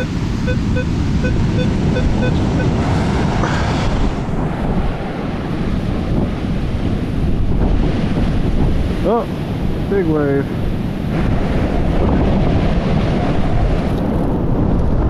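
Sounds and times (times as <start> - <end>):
metal detector beeps: 0.0 - 2.8
steady surf: 0.0 - 15.0
wave washing in: 0.0 - 15.0
wind on microphone: 0.0 - 15.0.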